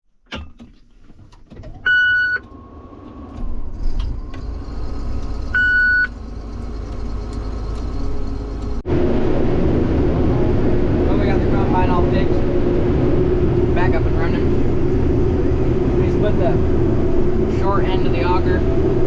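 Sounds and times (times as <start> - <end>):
vehicle engine running: 1.0 - 19.0
short electronic beeps: 5.6 - 6.1.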